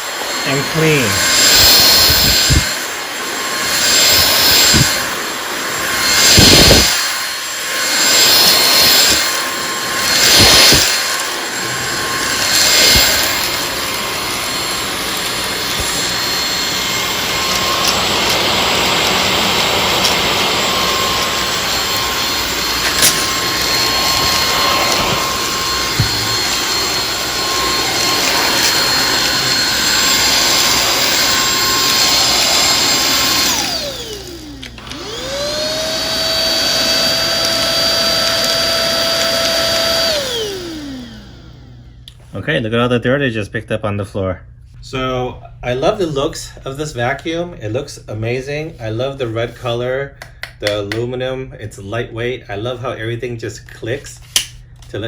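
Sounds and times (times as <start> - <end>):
stick vacuum motor whine: 0.0 - 42.2.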